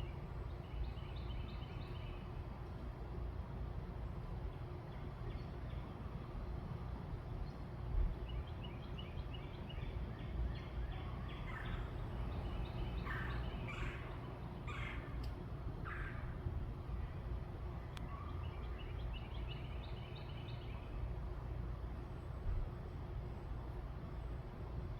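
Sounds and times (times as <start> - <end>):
low background rumble: 0.0 - 24.9
birds calling: 8.2 - 16.9.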